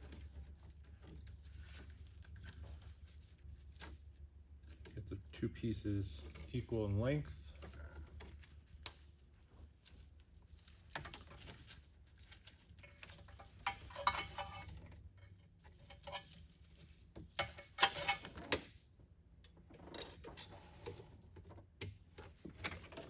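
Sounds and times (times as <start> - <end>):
tools clinking against metal: 17.4 - 18.3.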